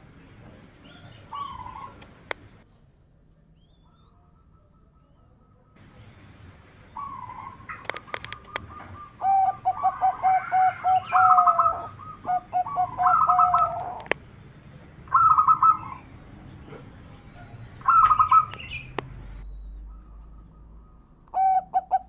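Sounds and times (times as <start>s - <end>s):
dove cooing: 0.4s - 2.6s, 6.8s - 14.2s, 15.0s - 19.0s, 19.8s - 22.0s
sharp clicks: 7.7s - 8.7s, 13.6s - 14.3s, 18.5s - 19.2s.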